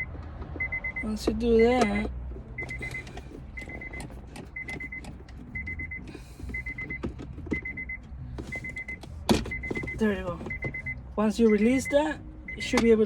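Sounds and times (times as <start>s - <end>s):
car warning chime beeps: 0.0s - 13.0s.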